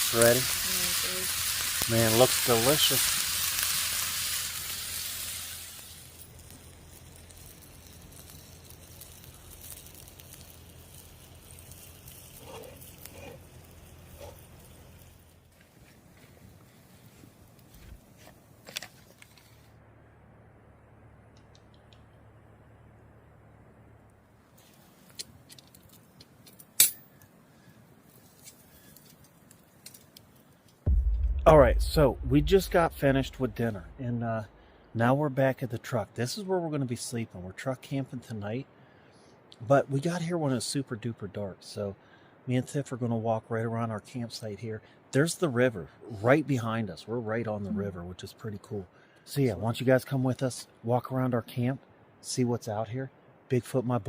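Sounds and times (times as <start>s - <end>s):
meat and onions sizzling: 0.0s - 15.5s.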